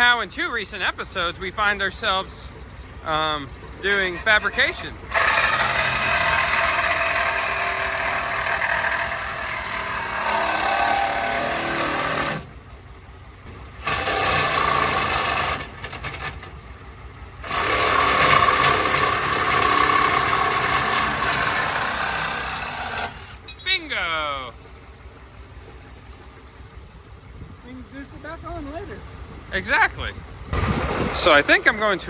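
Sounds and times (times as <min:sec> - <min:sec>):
diesel engine idling: 0:00.0 - 0:32.0
power tool cutting: 0:03.8 - 0:12.5, 0:13.8 - 0:16.4, 0:17.4 - 0:23.4, 0:30.6 - 0:32.0.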